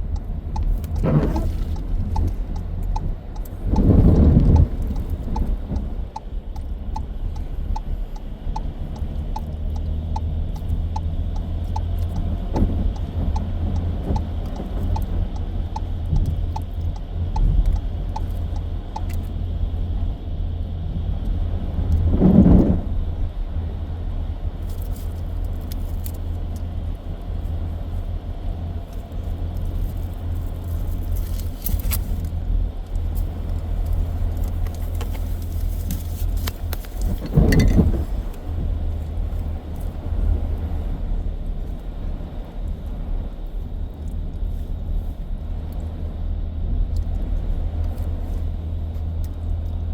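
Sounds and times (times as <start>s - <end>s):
faint ticks: 0.0s - 19.4s, 24.6s - 40.7s
car road rumble: 0.0s - 49.9s.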